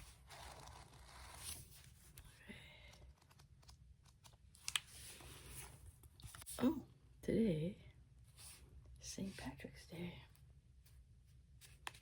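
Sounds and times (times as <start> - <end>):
paper pages flipping: 0.0 - 6.6.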